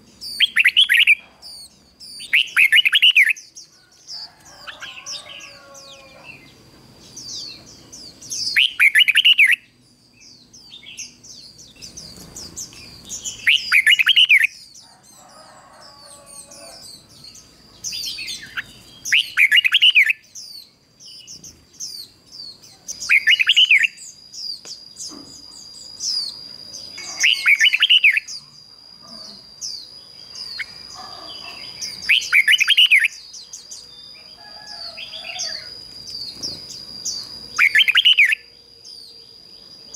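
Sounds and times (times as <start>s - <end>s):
bulbul singing warbled phrases: 0.0s - 39.9s
faint bird chirps: 0.0s - 39.9s
steady high-pitched tone: 24.9s - 31.0s.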